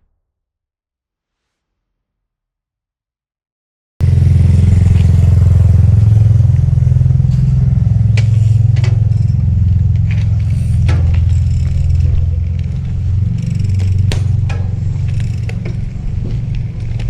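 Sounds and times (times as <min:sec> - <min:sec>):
bicycle clicks and rattles: 0:04.0 - 0:17.0.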